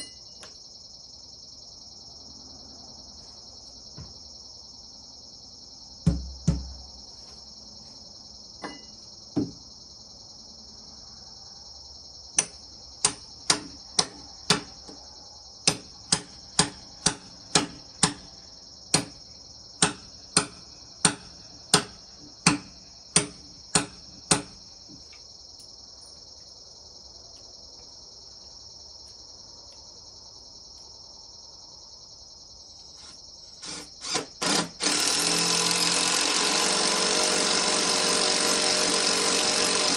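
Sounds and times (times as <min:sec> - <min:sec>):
crickets chirring: 0:00.0 - 0:39.9
power tool starting up: 0:33.6 - 0:39.9.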